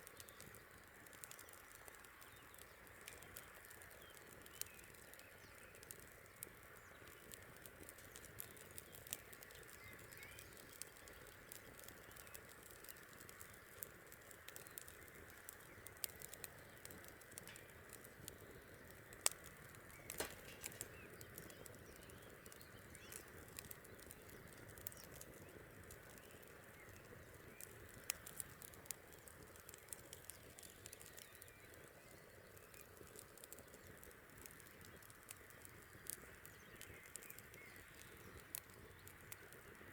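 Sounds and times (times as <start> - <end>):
campfire crackling: 0.0 - 39.9
pops and snaps of fire: 0.0 - 39.9.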